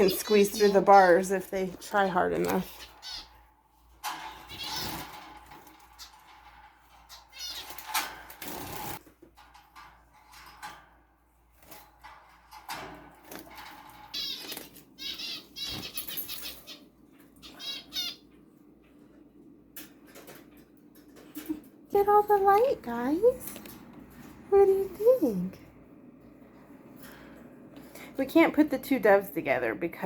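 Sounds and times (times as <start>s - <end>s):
birds fluttering wings: 4.2s - 9.1s, 11.5s - 16.6s
high chirping bird calls: 14.2s - 18.3s.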